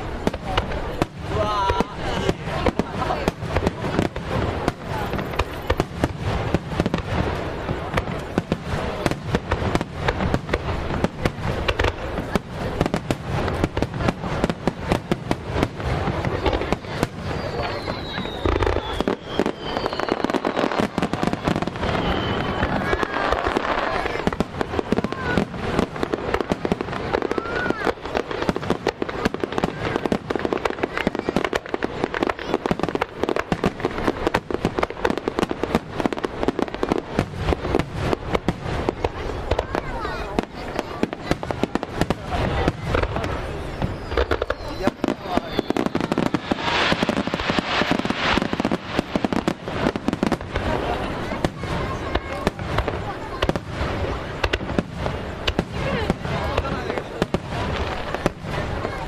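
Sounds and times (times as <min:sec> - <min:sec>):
fireworks rumble: 0:00.0 - 0:59.0.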